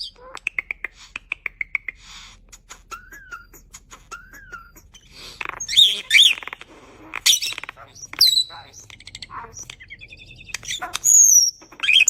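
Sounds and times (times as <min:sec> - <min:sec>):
starling clicks and chirps: 0:00.0 - 0:02.1, 0:04.9 - 0:12.0.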